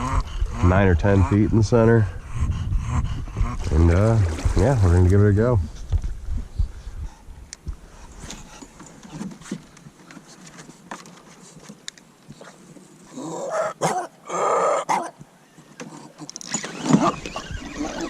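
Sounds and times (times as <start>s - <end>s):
dog rough breathy sound: 0.0s - 3.8s, 6.6s - 9.4s.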